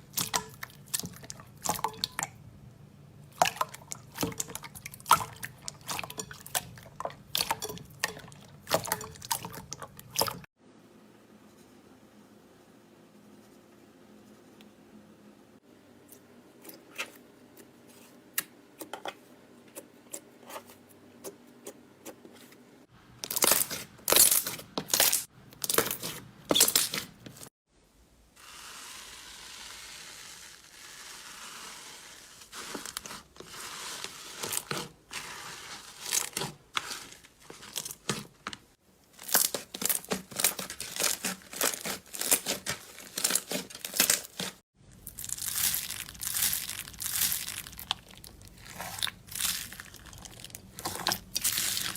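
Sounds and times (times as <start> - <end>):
slime squelching by hand: 0.0 - 2.4, 3.3 - 10.5, 23.2 - 27.5, 32.5 - 51.9.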